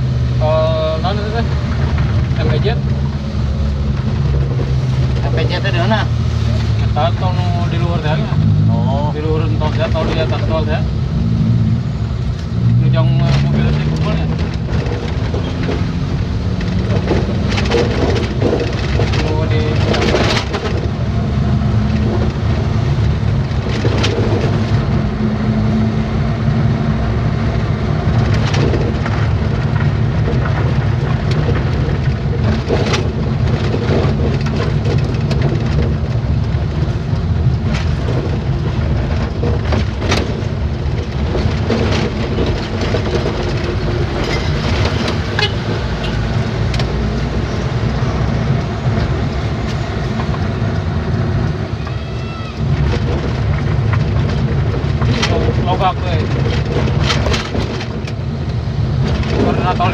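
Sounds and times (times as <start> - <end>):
truck engine and road rumble: 0.0 - 59.9
sharp knocks and rattles: 12.5 - 59.9.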